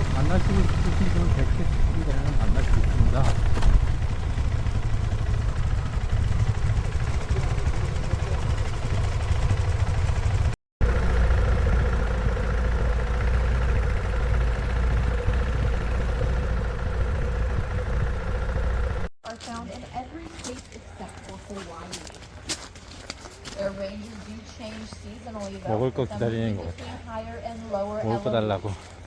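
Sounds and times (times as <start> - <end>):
wind and road rumble: 0.0 - 19.1
vehicle engine running: 0.0 - 28.7.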